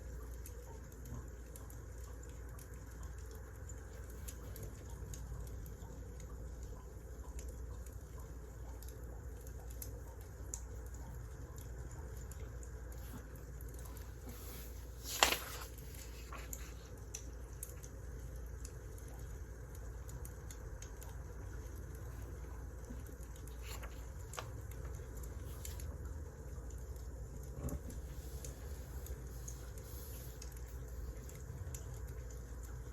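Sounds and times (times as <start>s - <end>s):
wood fire crackling: 11.8s - 32.9s.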